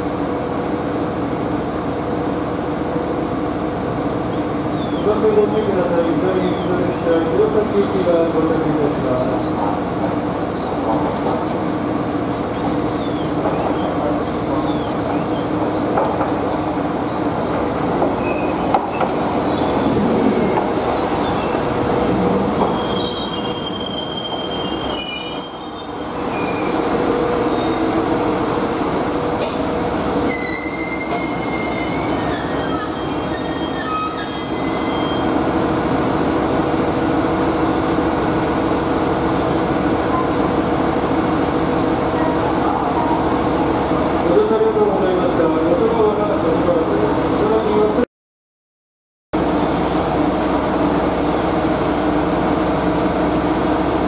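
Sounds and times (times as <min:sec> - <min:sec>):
railcar engine humming: 0:00.0 - 0:48.0, 0:49.4 - 0:54.0
brake squeals: 0:18.2 - 0:21.8, 0:22.6 - 0:27.9, 0:28.6 - 0:35.3.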